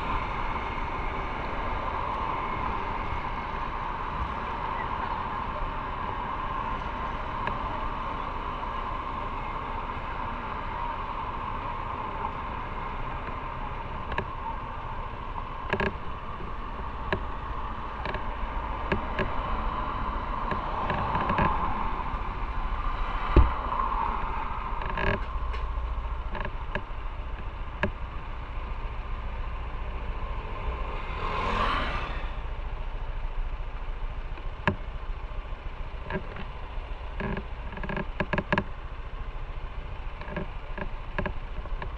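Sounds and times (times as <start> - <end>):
wind and road noise: 0.0 - 41.9.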